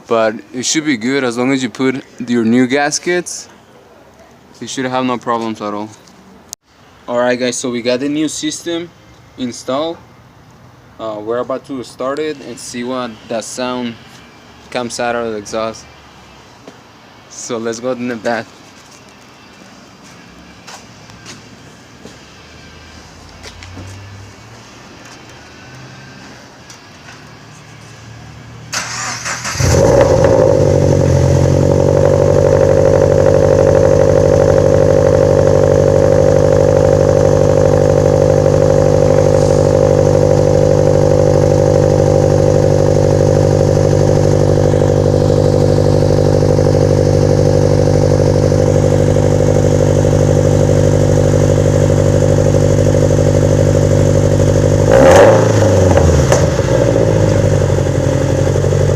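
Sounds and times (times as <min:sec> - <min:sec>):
car engine cranking and starting: 0:28.7 - 0:58.9
car engine idling: 0:28.7 - 0:58.9.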